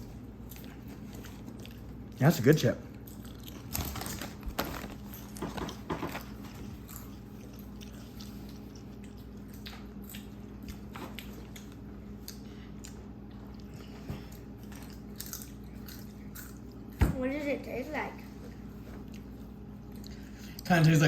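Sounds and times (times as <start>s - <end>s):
person crunching potato chips: 2.9s - 13.8s, 14.4s - 16.7s.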